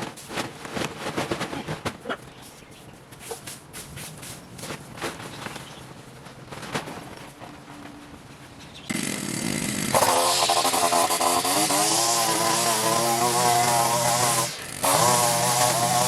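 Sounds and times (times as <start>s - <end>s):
garden power tool motor: 8.9s - 16.0s.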